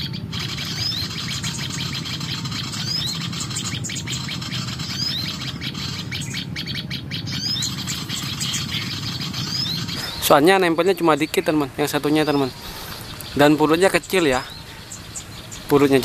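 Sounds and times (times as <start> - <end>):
birds twittering: 0.0 - 16.0
songbird high rising call: 0.0 - 16.0.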